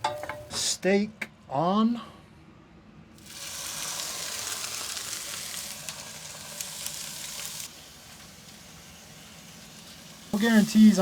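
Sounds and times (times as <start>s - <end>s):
steak sizzling in frying pan: 3.2s - 11.0s.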